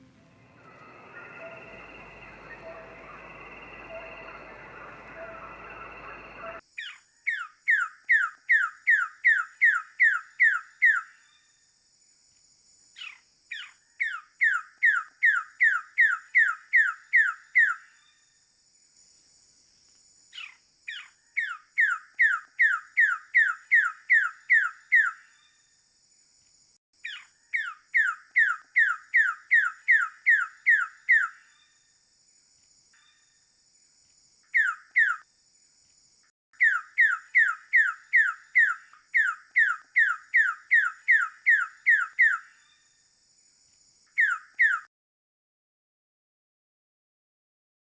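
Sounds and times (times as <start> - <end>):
bird calling falling notes: 0.0 - 6.6
high-pitched hum: 0.0 - 6.6.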